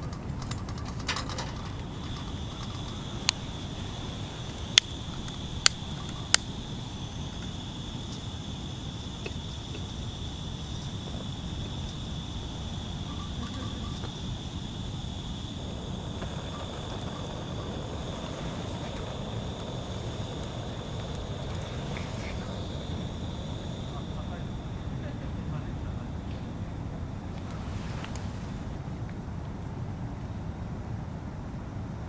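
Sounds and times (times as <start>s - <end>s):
low background rumble: 0.0s - 32.0s
insect buzzing: 0.6s - 28.8s
sharp pops: 1.0s - 8.4s, 9.0s - 25.1s.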